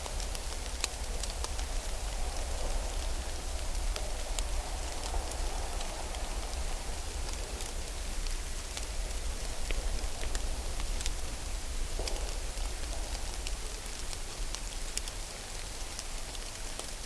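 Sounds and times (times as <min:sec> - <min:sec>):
rain-like patter: 0:00.0 - 0:17.0
light ticks: 0:00.2 - 0:02.6, 0:11.9 - 0:16.9.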